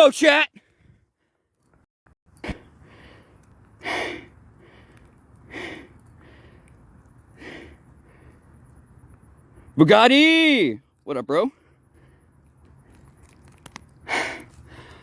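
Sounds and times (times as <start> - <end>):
man breathing hard: 2.5 - 8.7, 11.5 - 13.0, 14.0 - 15.0.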